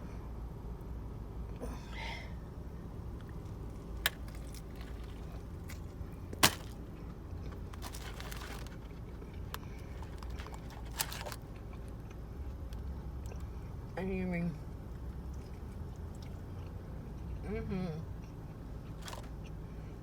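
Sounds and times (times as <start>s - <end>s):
steady low hum: 0.0s - 20.0s
food crunching: 3.1s - 13.4s, 18.8s - 19.6s
rustling of handling: 3.2s - 11.5s, 19.0s - 19.3s.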